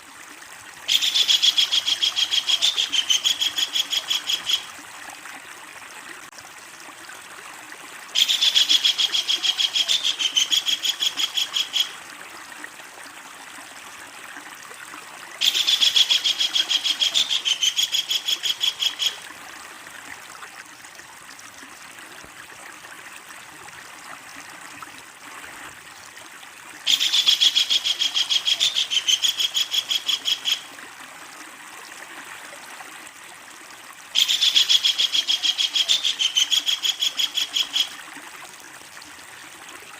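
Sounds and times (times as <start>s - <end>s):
steady hiss like running water: 0.0s - 39.9s
kingfisher chattering call: 0.9s - 4.7s, 8.2s - 11.9s, 15.4s - 19.2s, 26.9s - 30.6s, 34.2s - 37.9s.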